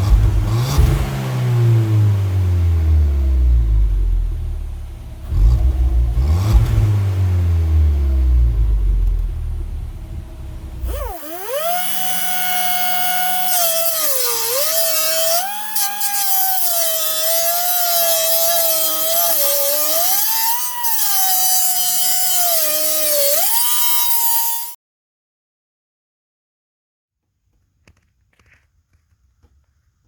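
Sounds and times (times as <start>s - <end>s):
car engine rumbling: 0.0s - 15.8s
power tool motor under load: 10.8s - 24.8s.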